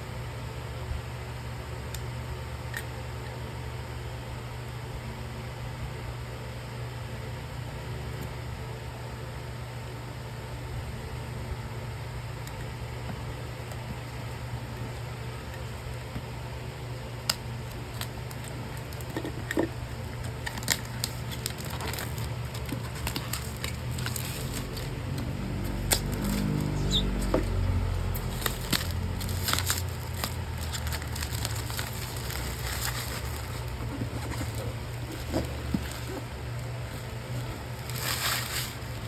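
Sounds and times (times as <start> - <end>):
steady low hum: 0.0 - 39.0
cardboard and plastic crinkling: 17.5 - 39.0.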